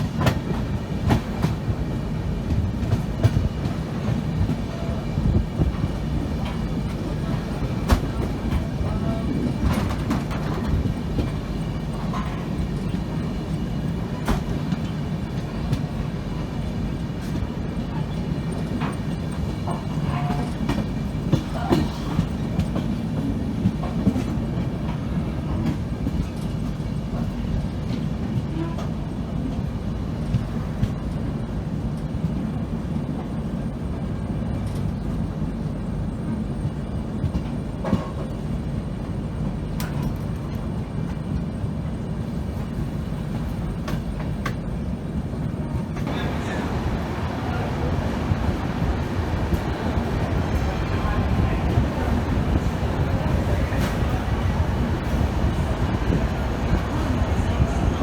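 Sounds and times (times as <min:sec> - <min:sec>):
sharp clacks of train wheels: 0:00.0 - 0:16.0, 0:17.1 - 0:29.0, 0:36.6 - 0:38.5, 0:39.4 - 0:41.4, 0:42.6 - 0:44.7
train wheels rumbling on track: 0:00.0 - 0:58.0.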